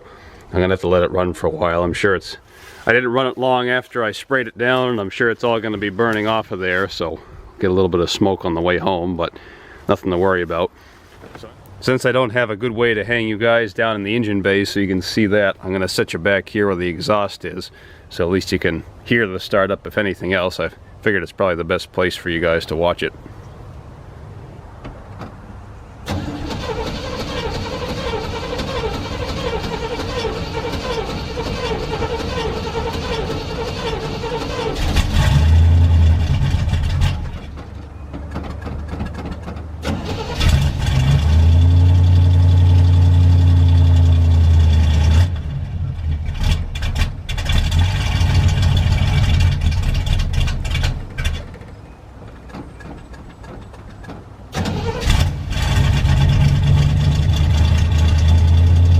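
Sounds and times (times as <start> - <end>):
pickup engine starting and revving: 26.0 - 51.8, 52.4 - 58.9.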